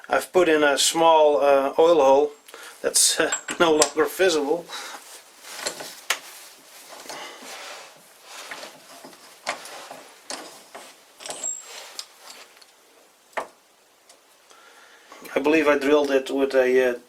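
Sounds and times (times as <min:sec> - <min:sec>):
metal parts clicking and scraping: 0:03.3 - 0:04.4, 0:05.4 - 0:07.2, 0:08.2 - 0:12.8.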